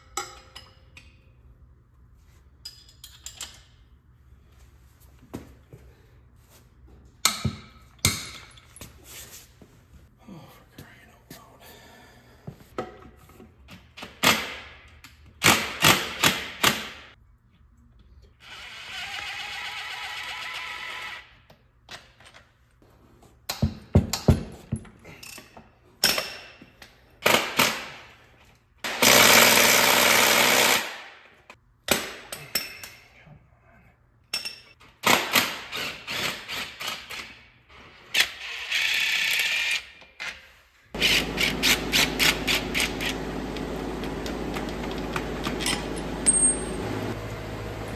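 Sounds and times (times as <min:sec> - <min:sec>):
metal tools clicking and clanking: 0:02.6 - 0:03.8, 0:44.1 - 0:47.2
impact wrench running: 0:29.0 - 0:31.0, 0:41.0 - 0:47.9.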